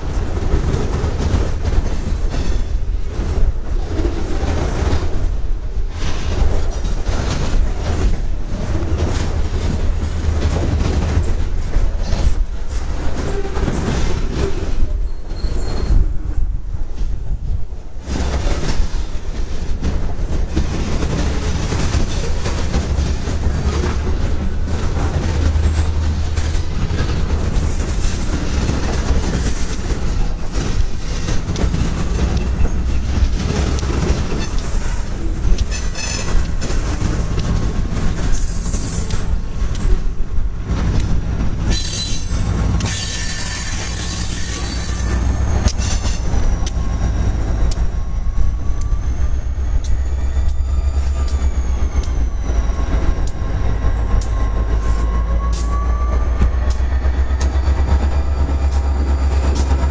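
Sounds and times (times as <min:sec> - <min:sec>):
diesel locomotive engine: 0:00.0 - 0:59.9
steel wheels clattering on rails: 0:00.0 - 0:59.9
wheel squeals: 0:13.2 - 0:16.2, 0:35.6 - 0:36.6, 0:41.7 - 0:59.9.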